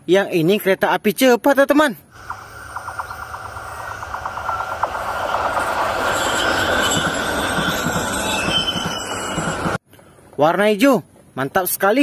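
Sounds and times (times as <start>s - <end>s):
high-speed train passing: 2.1s - 9.8s
rapid clicking: 2.2s - 6.1s
high squealing tones: 2.2s - 9.8s.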